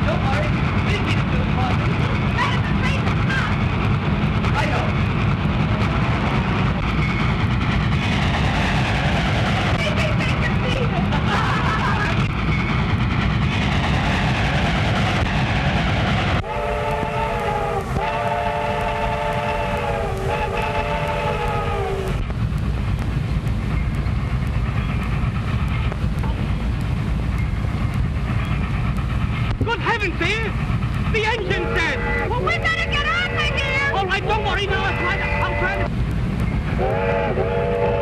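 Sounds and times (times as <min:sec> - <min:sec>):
train rumbling: 0:00.0 - 0:38.0
train whistle blasts: 0:16.4 - 0:22.2, 0:34.8 - 0:35.9, 0:36.8 - 0:38.0.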